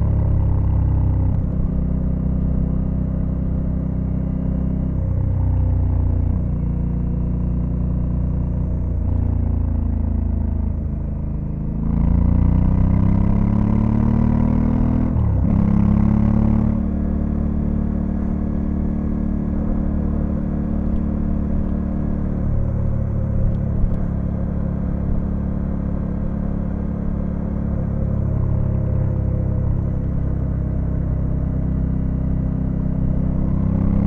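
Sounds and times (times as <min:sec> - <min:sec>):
motorcycle engine shifting gears: 0:12.4 - 0:34.0.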